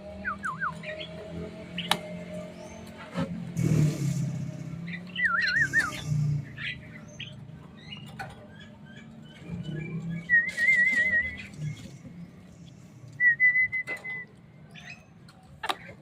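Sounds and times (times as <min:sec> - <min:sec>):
birds chirping: 0:00.0 - 0:16.0
held bird whistle: 0:05.2 - 0:06.0, 0:10.2 - 0:11.5.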